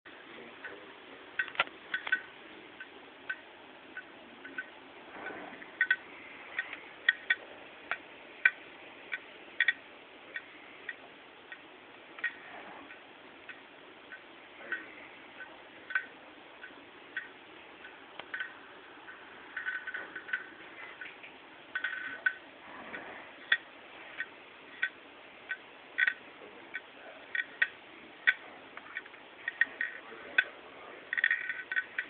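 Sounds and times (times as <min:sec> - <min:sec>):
hard drive clicking: 0:01.4 - 0:30.5.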